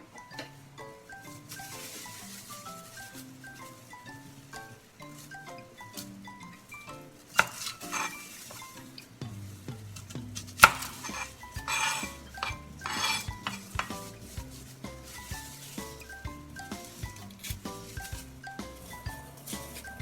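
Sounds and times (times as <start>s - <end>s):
light background music: 0.0s - 20.0s
metal utensils scraping a pot: 7.3s - 9.1s, 10.4s - 18.2s.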